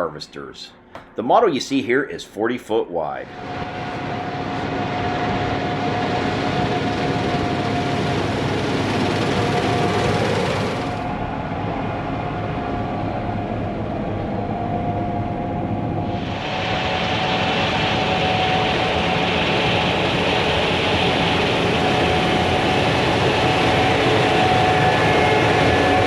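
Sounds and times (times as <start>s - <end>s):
mechanical whine: 0.0s - 26.0s
high machine hiss: 16.1s - 26.0s.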